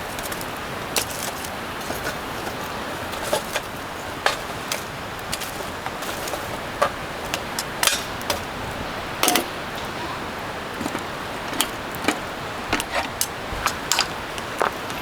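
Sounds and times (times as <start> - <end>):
light knocks and clinks: 9.2 - 9.6, 10.8 - 15.0.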